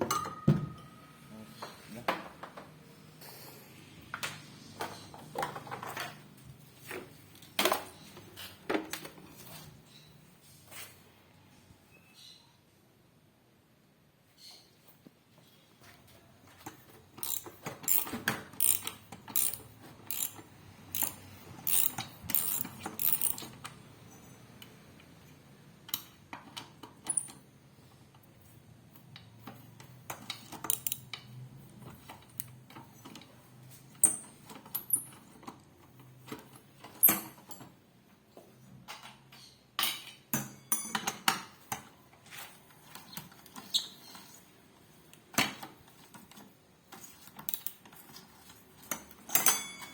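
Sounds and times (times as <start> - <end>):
metallic clicks and knocks: 17.2 - 23.8, 30.1 - 31.3.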